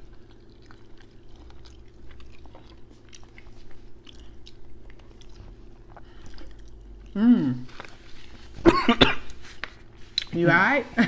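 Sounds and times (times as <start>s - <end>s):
people chewing and biting: 0.0s - 8.6s
steady low hum: 0.0s - 11.0s.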